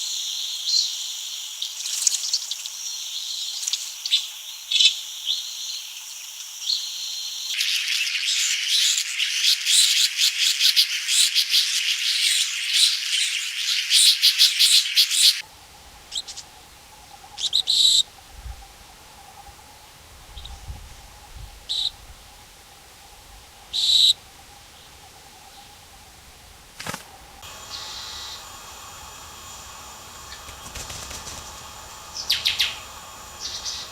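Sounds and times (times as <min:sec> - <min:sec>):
forest ambience: 0:00.0 - 0:33.9
birds chirping in chorus: 0:23.1 - 0:33.9
high single bird chirps: 0:27.4 - 0:33.9.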